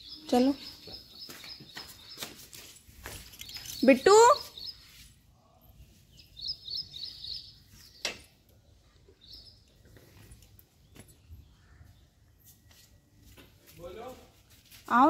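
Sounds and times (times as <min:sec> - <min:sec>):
bird chirping: 0:00.0 - 0:05.1, 0:05.7 - 0:12.7.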